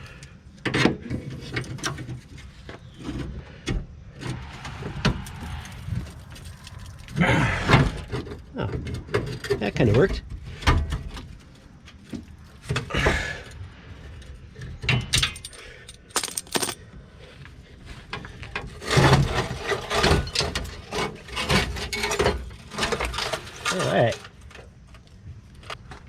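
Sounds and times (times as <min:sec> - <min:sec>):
metal plate scraping and clanking: 0:01.0 - 0:11.1.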